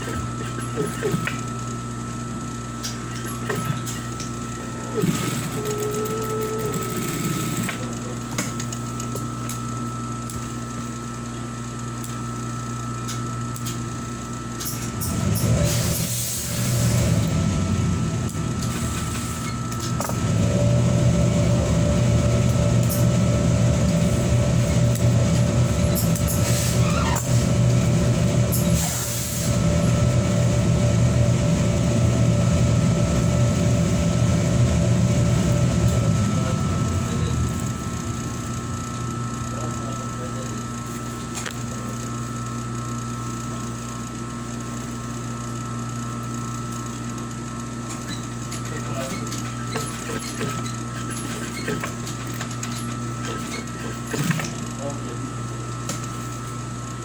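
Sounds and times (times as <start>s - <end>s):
sewing machine running: 4.8s - 7.9s, 14.6s - 40.5s.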